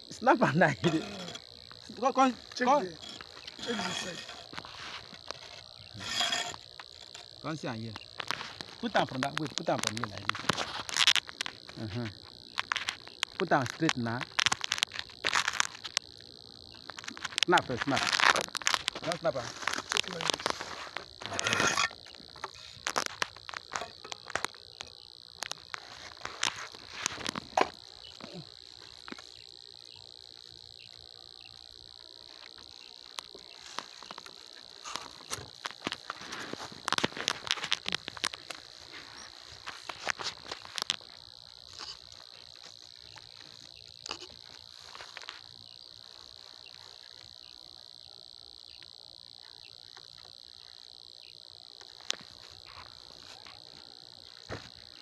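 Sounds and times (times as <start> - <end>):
crickets chirring: 0.0 - 55.0
sharp knocks and scrapes: 0.6 - 7.4, 17.0 - 24.5, 33.6 - 40.9.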